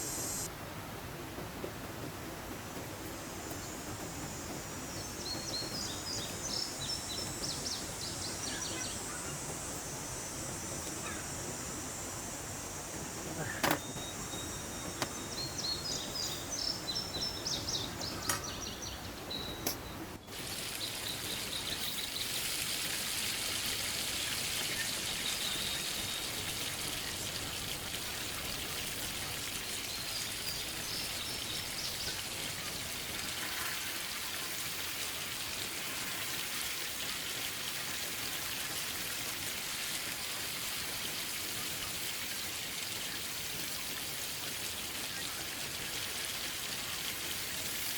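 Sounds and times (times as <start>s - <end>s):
birds chirping: 0.0s - 0.5s, 3.5s - 22.5s
faint bird calls: 10.9s - 11.8s
stream flowing water: 20.3s - 47.9s.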